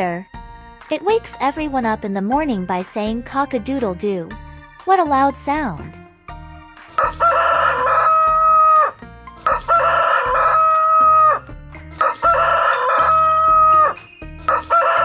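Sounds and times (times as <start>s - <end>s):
rooster crowing: 7.0s - 11.4s, 12.0s - 15.0s.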